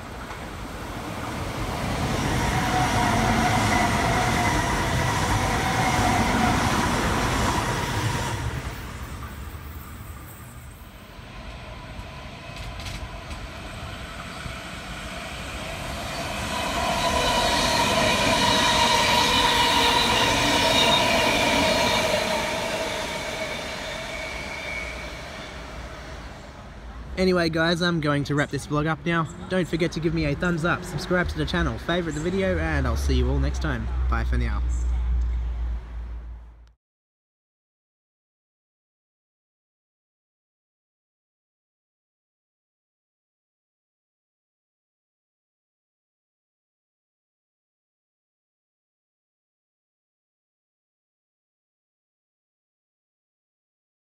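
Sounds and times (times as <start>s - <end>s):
electric trains passing: 0.0s - 36.4s
whining tones: 11.5s - 25.9s.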